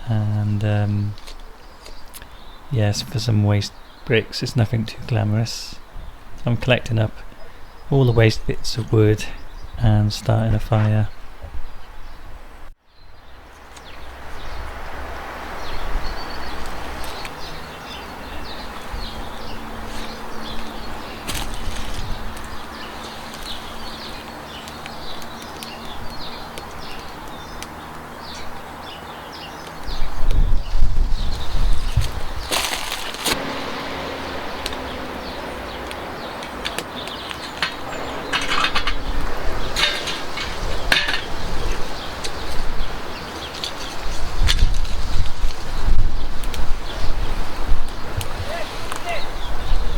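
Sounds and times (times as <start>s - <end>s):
wood fire crackling: 16.5s - 29.8s, 31.3s - 49.2s
clattering bursts: 32.6s - 41.5s.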